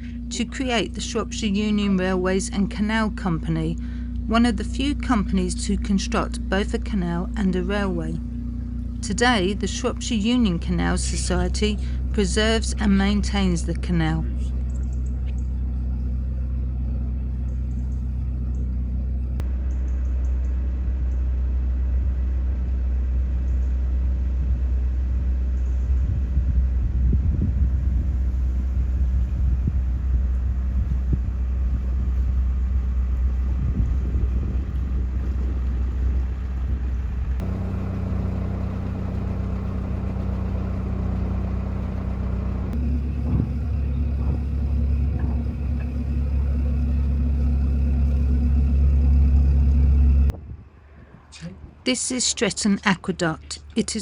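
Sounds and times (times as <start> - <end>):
boat diesel engine rumbling: 0.0 - 19.4, 21.4 - 50.4.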